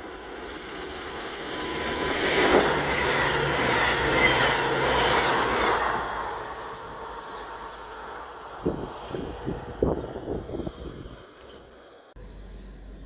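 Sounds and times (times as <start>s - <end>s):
diesel engine drone: 0.0s - 13.0s
train wheel and air rush: 0.0s - 13.0s.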